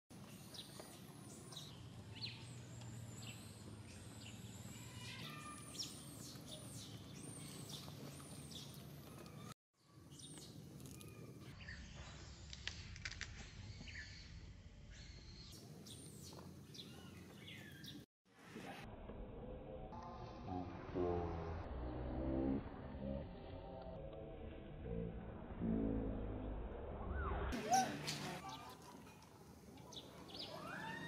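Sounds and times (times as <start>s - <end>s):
birds chirping: 0.2s - 12.2s, 13.4s - 18.1s, 29.8s - 31.0s.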